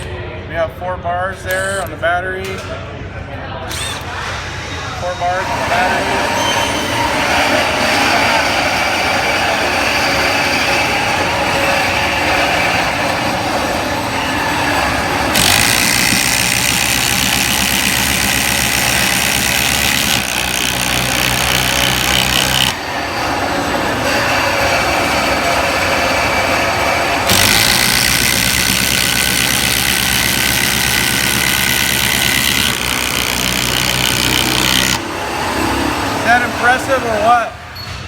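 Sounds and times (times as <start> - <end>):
impact drivers hammering screws: 3.7 - 4.4, 15.3 - 22.8, 27.2 - 35.0.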